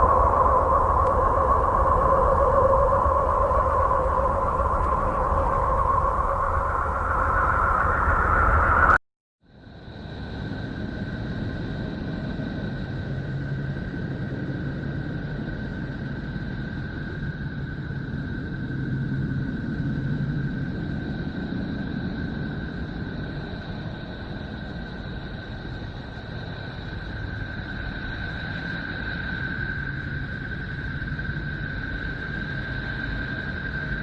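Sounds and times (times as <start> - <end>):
low rumbling drone: 0.0 - 9.0
thin high tones: 0.0 - 9.0.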